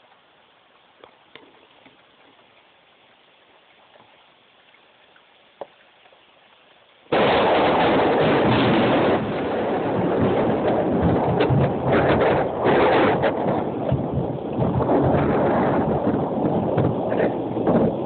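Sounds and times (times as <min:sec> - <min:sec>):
thunder clap and rumble: 0:07.1 - 0:18.0.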